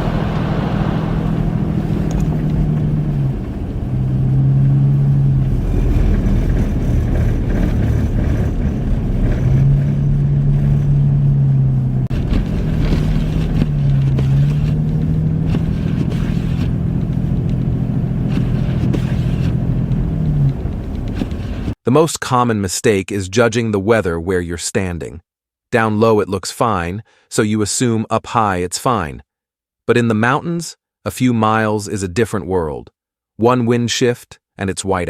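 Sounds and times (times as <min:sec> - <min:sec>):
car engine hum: 0:00.0 - 0:21.8
road and tyre rumble: 0:00.0 - 0:21.8.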